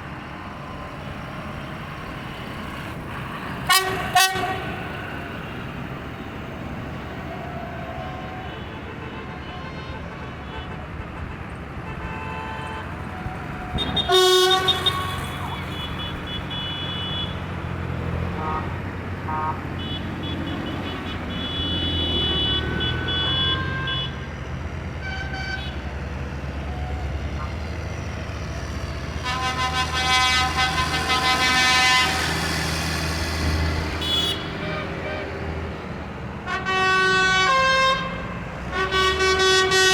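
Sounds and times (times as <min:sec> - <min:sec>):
tractor engines passing: 0:00.0 - 0:39.9
vehicle horns tooting: 0:03.7 - 0:05.0, 0:08.0 - 0:24.3, 0:25.0 - 0:25.9, 0:29.1 - 0:32.9, 0:33.8 - 0:35.5, 0:36.4 - 0:39.9.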